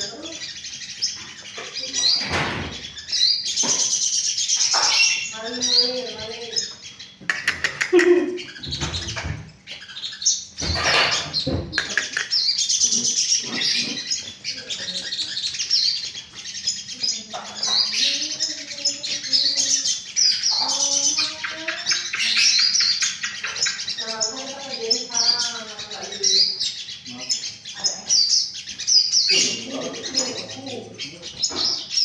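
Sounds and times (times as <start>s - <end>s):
songbird chirping and trilling: 0.0s - 32.0s.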